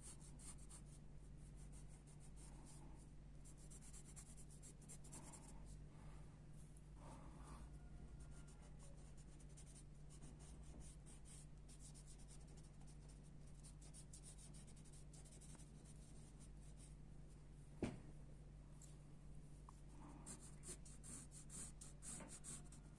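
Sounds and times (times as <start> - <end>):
pencil scratching on paper: 0.0 - 2.8, 3.4 - 5.5, 7.6 - 16.9, 20.2 - 22.9
low steady hum: 0.0 - 22.9.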